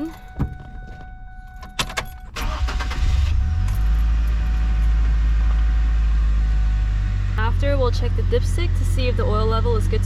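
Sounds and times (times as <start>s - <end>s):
ignition clicks: 0.0s - 5.6s
car engine idling: 0.0s - 10.0s
starter cranking: 2.2s - 3.4s.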